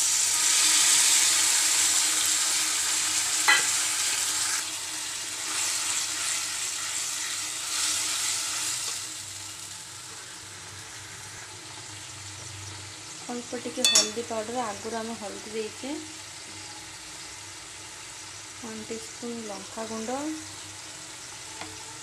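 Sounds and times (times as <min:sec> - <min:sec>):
puree sizzling in hot oil: 0:00.0 - 0:22.0
sharp clink: 0:13.8 - 0:14.3.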